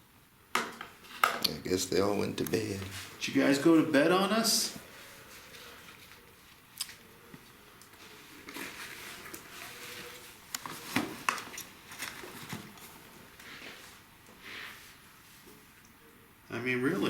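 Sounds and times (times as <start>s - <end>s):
faint rustling: 4.6s - 15.9s.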